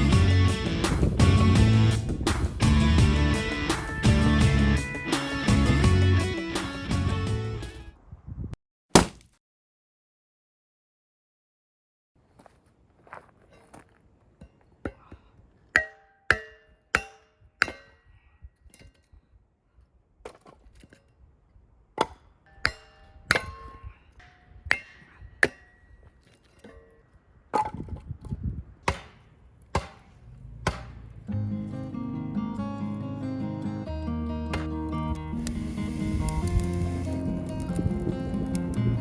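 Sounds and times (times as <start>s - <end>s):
axe chopping wood: 8.9s - 9.4s, 28.8s - 31.2s, 34.5s - 34.8s.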